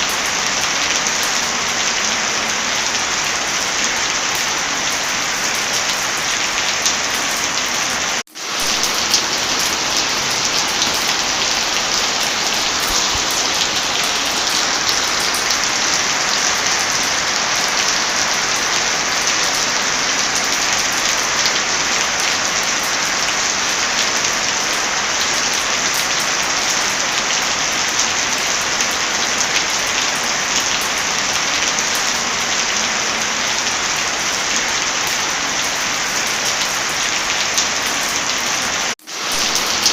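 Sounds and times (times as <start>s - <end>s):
heavy rain falling: 0.0s - 39.9s
fireplace crackling: 8.2s - 16.8s.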